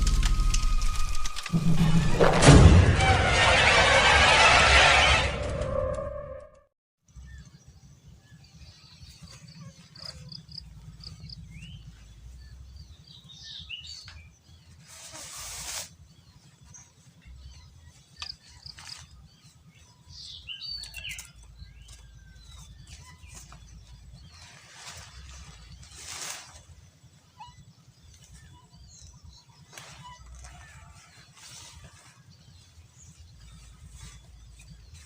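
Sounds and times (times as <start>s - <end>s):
low rumble: 0.0s - 8.2s, 16.6s - 35.0s
birds chirping: 7.1s - 15.1s, 15.9s - 35.0s
rustling noise: 14.7s - 16.2s, 21.2s - 27.3s, 29.6s - 35.0s.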